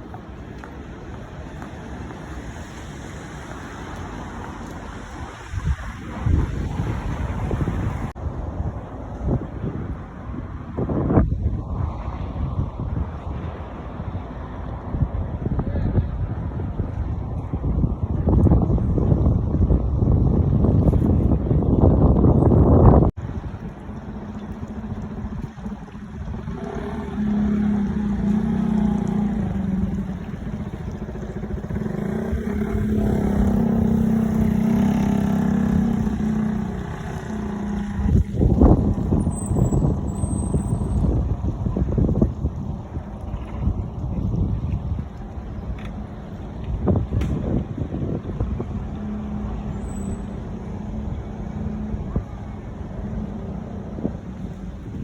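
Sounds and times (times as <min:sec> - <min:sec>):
wind buffeting microphone: 0:00.0 - 0:55.0
vehicle engine humming: 0:21.2 - 0:55.0.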